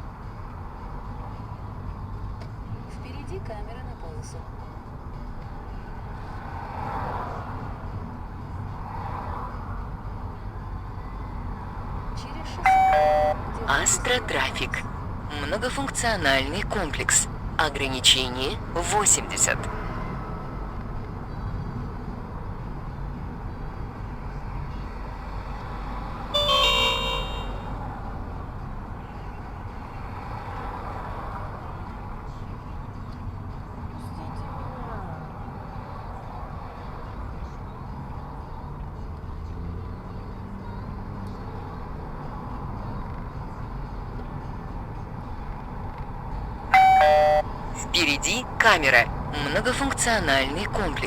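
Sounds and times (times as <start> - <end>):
car road and engine noise: 0.0 - 51.0
electronic chime: 12.7 - 13.4, 26.4 - 27.7, 46.8 - 47.4.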